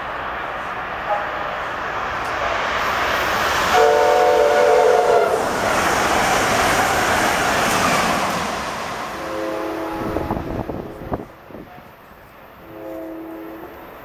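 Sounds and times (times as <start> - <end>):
train rushing and wheel clatter: 0.0 - 14.0
train air horn: 3.7 - 5.4, 9.2 - 10.6, 12.6 - 13.8.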